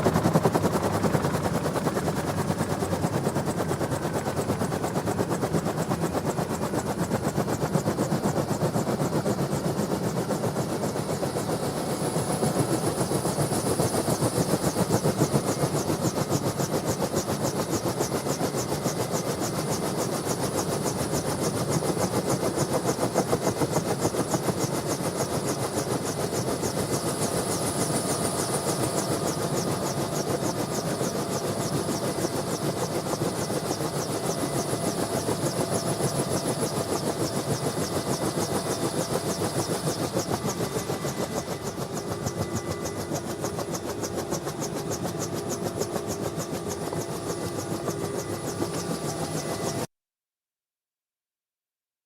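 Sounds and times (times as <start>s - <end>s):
turbine engine whine: 0.0s - 5.0s, 27.3s - 49.9s
helicopter rotor chop: 0.0s - 49.9s.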